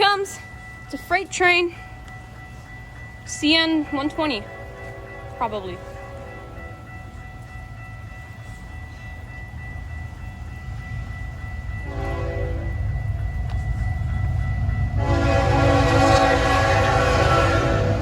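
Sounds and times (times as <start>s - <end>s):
locomotive rumble: 0.0s - 18.0s
train horn blast: 11.8s - 12.8s, 15.0s - 18.0s.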